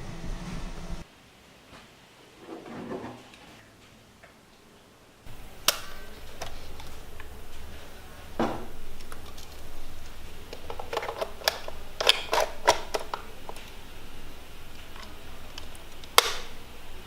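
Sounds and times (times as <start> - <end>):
mechanical clicks and knocks: 5.3 - 17.0.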